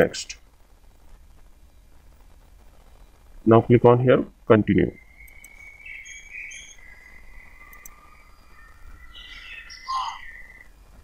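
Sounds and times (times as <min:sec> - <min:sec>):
bird chirps: 0:04.9 - 0:10.7.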